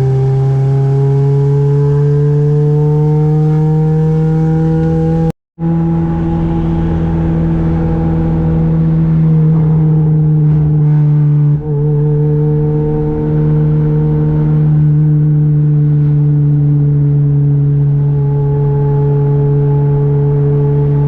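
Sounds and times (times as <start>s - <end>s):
car engine running: 4.6s - 21.0s.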